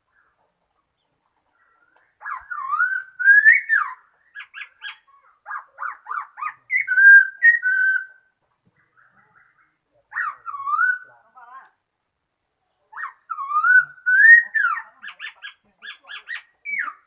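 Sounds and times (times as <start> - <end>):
bird singing whistled notes: 2.2 - 5.0, 6.1 - 8.2, 10.2 - 11.1, 13.0 - 15.4.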